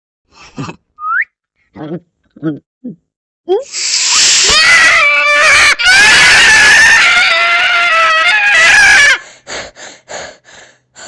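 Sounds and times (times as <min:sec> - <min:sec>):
cat yowling: 0:03.8 - 0:09.2.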